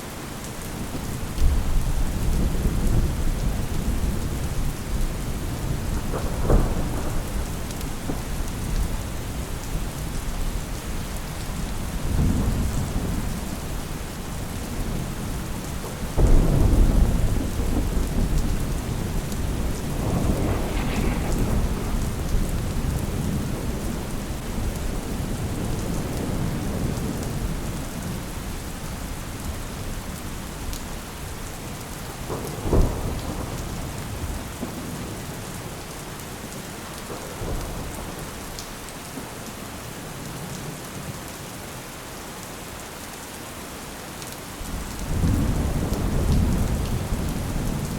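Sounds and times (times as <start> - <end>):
steady rain: 0.0 - 47.9
thunder rolling: 1.2 - 10.4, 14.4 - 27.8.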